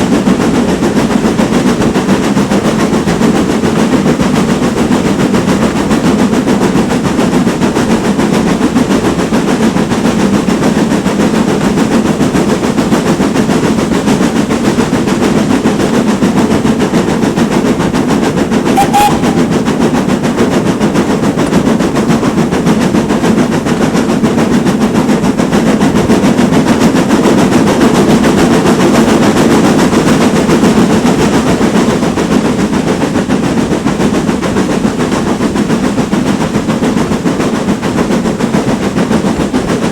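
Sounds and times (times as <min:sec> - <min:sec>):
steam locomotive exhaust barking: 0:18.5 - 0:20.6.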